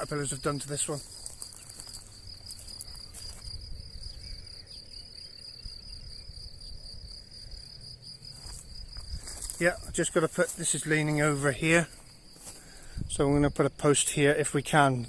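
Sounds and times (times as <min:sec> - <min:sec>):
cricket trilling: 0:00.0 - 0:15.0.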